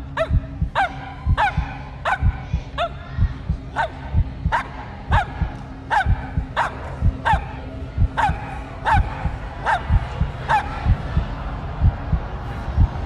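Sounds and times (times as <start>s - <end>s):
background music with pulsing beat: 0.0s - 13.0s
dog barking: 0.2s - 3.0s, 3.8s - 10.9s.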